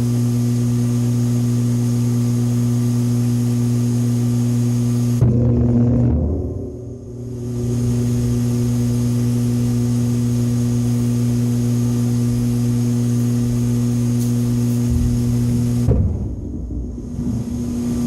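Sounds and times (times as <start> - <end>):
compressor humming loudly: 0.0 - 18.0.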